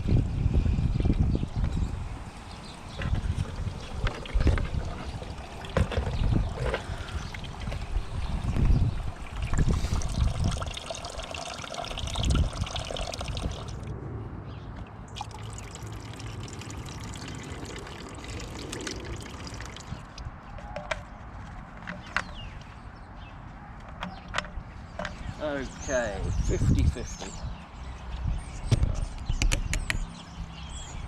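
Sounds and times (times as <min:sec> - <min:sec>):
liquid trickling and pouring: 0:02.3 - 0:13.9, 0:15.1 - 0:20.3.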